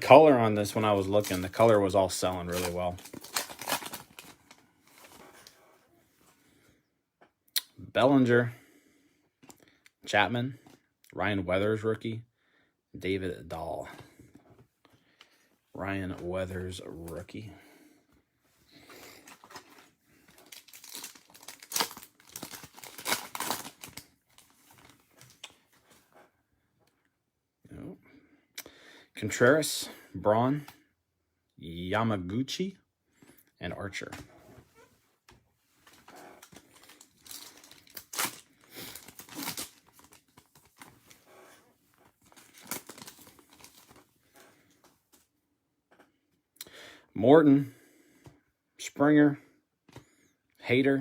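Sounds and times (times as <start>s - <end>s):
card pack wrapper tearing and crinkling: 0.5s - 5.5s, 19.0s - 25.5s, 35.9s - 41.3s, 42.2s - 44.0s.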